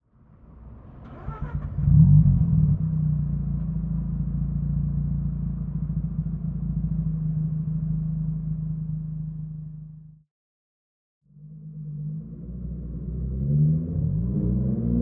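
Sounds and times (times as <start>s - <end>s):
rotary engine starting and idling: 0.8s - 4.0s.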